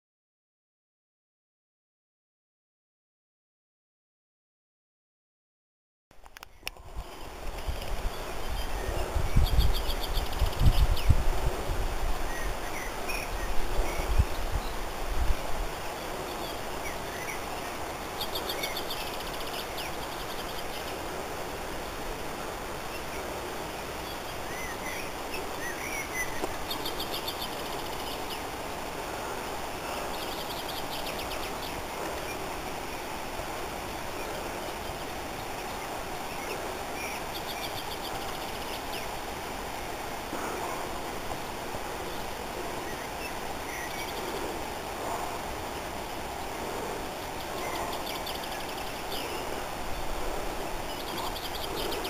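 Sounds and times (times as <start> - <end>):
steady background hiss: 6.2 - 52.0
lower bird chirps: 6.4 - 11.3, 12.2 - 21.1, 22.8 - 28.6, 29.6 - 33.2, 33.9 - 39.2, 42.0 - 44.5, 47.2 - 50.2, 50.8 - 52.0
birds trilling: 41.9 - 52.0.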